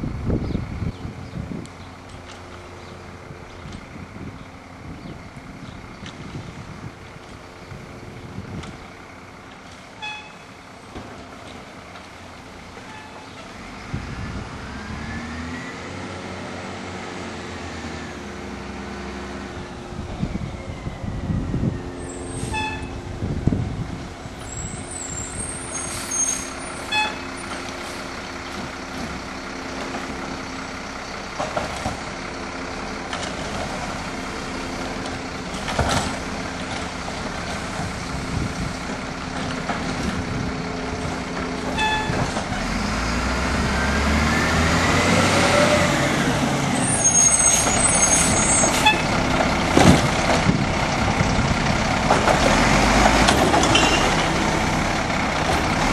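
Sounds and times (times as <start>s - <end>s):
diesel engine idling and revving: 0.0s - 55.9s
short high squeaks: 22.1s - 23.0s, 24.5s - 27.6s, 41.8s - 42.2s, 46.8s - 49.1s, 53.7s - 54.2s.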